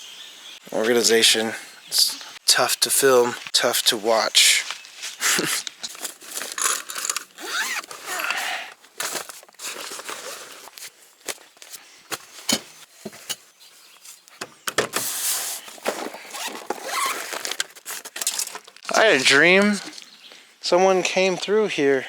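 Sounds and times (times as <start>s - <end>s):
bags rustling: 4.4s - 13.4s, 14.9s - 20.0s
knocks and clatter of items: 12.1s - 13.4s, 14.4s - 15.2s.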